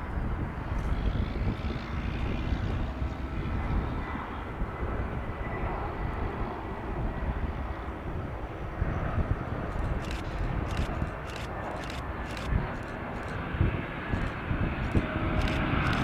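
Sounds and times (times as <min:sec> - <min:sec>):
jet engines rumbling: 0:00.1 - 0:16.0
short clicks: 0:09.7 - 0:13.4, 0:14.1 - 0:16.0.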